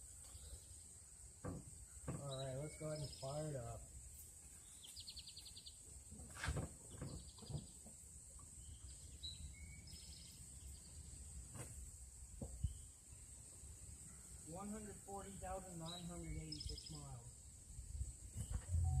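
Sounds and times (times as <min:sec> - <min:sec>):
small birds chirping: 0:00.0 - 0:06.1, 0:06.8 - 0:11.2, 0:12.5 - 0:19.0
high-pitched whine: 0:18.4 - 0:19.0.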